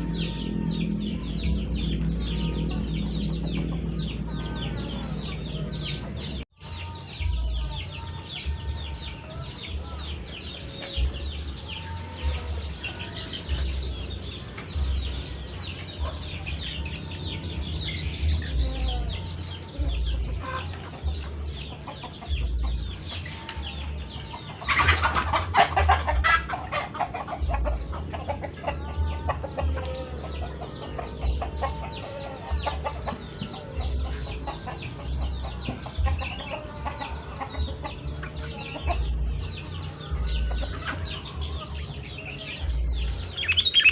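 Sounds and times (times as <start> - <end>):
bird chattering chirps: 9.9 - 43.9.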